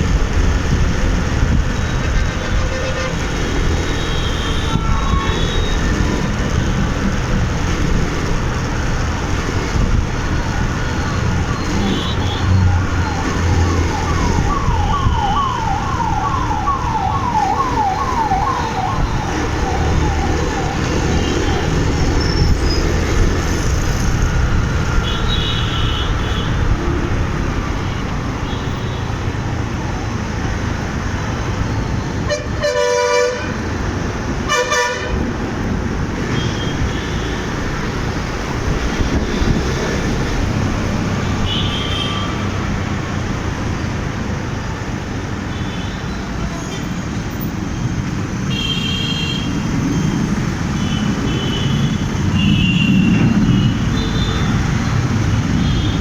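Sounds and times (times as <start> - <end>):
motorbike engine and road noise: 0.0 - 32.6, 33.4 - 56.0
siren yelping: 12.6 - 21.8
vehicle horn honks: 34.5 - 35.2.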